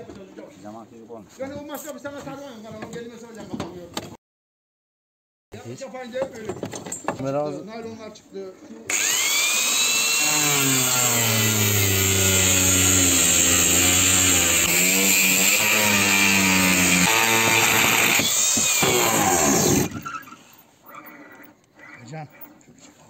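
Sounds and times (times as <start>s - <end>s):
power tool motor cutting: 8.9s - 20.2s.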